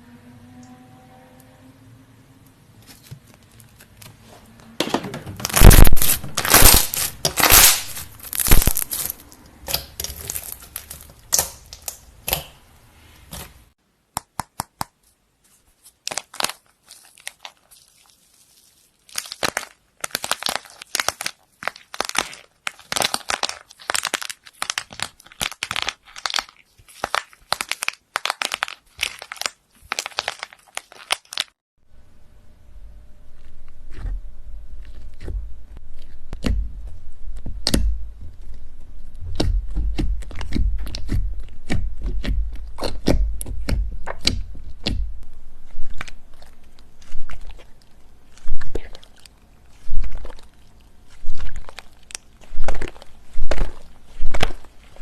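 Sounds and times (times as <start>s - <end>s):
slime crackling and popping: 5.4s - 12.6s, 15.8s - 31.6s, 37.4s - 45.0s, 45.6s - 55.0s.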